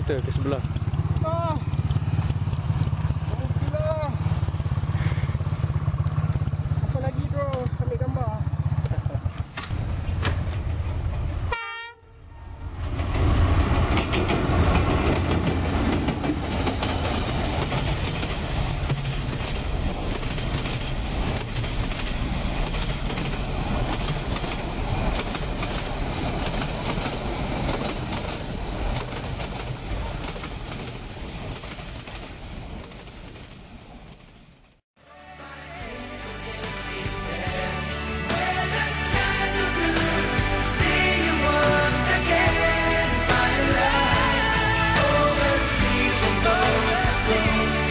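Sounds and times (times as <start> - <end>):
train wagons rumbling on rails: 0.0 - 11.6, 12.4 - 34.8.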